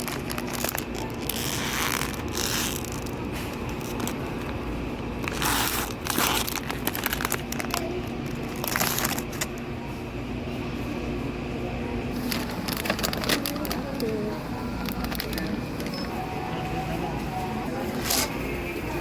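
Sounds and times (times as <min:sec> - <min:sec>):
crinkling and rustling handling: 0:00.0 - 0:09.6, 0:12.1 - 0:16.2
low background hum: 0:00.0 - 0:19.0.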